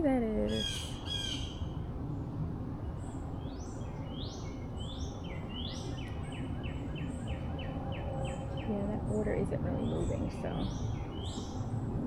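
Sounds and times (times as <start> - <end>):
low outdoor background hum: 0.0 - 12.0
songbird singing: 0.0 - 12.0.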